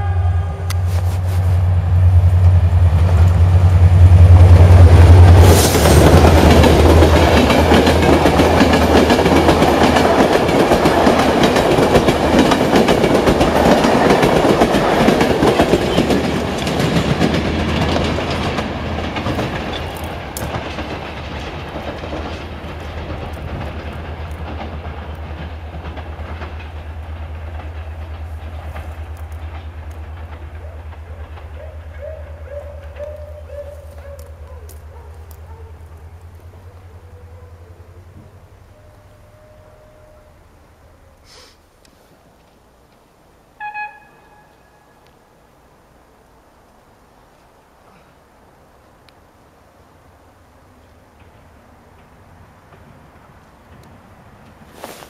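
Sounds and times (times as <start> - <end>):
train passing with low hum: 0.0 - 55.0
wheels clattering on rails: 2.2 - 35.6, 50.8 - 55.0.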